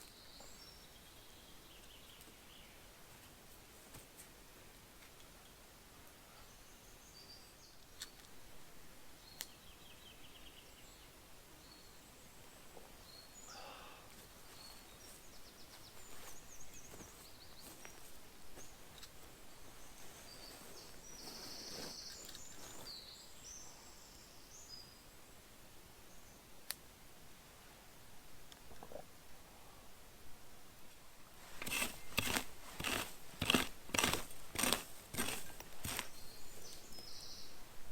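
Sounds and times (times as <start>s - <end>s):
small birds chirping: 0.0s - 3.0s, 5.3s - 8.4s, 9.2s - 25.4s, 31.6s - 37.9s
rustling: 14.2s - 23.0s, 31.3s - 36.9s.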